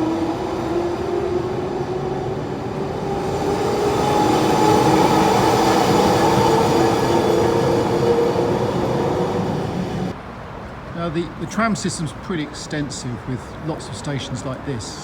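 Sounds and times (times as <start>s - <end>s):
tram wheel and rail rumble: 0.0s - 10.6s.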